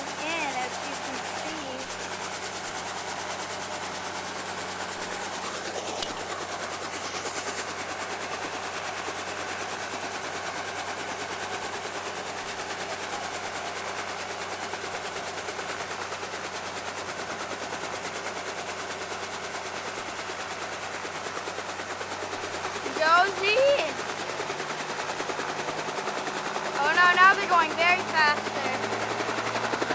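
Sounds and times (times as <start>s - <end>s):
helicopter rotor beating: 0.0s - 29.9s.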